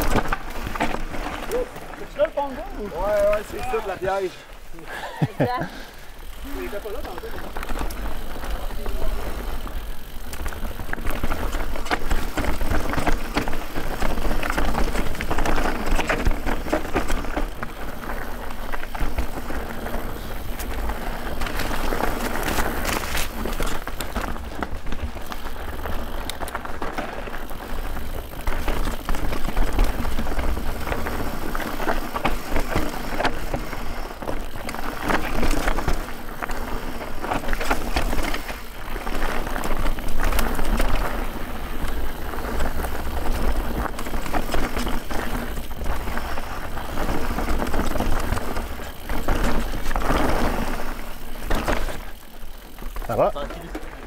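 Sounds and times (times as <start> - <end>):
bike rattling and clicking: 0.0 - 54.0
tyres rolling over dirt and rocks: 0.0 - 54.0.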